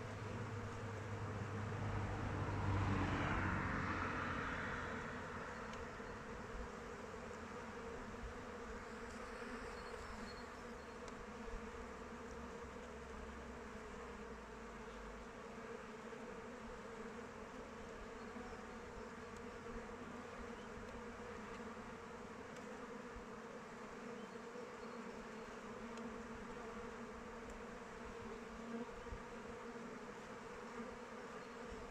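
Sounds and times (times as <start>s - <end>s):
honeybees buzzing: 0.0s - 31.9s.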